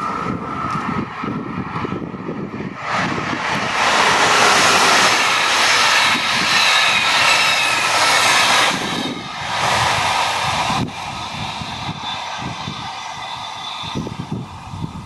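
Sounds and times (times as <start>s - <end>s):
train wheels rushing on rails: 0.0s - 15.0s
faint high whine: 3.9s - 15.0s.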